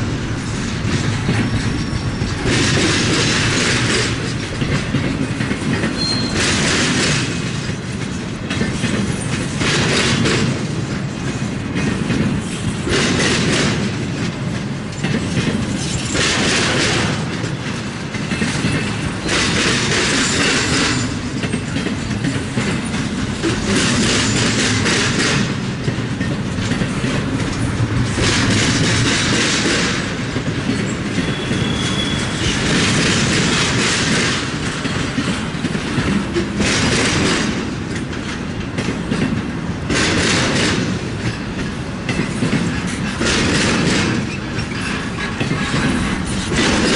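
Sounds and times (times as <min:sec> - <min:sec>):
freight train low rumble: 0:00.0 - 0:46.9
wheel and rail clatter: 0:00.0 - 0:46.9.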